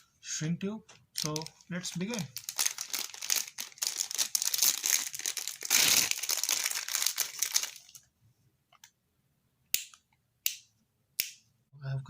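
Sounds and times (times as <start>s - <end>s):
plastic packaging crinkling: 1.1s - 8.0s.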